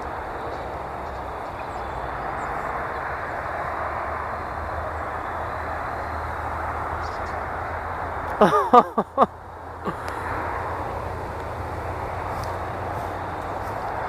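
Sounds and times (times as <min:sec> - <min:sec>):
outdoor background rush: 0:00.0 - 0:14.0
loud falling pitched call: 0:08.4 - 0:09.3.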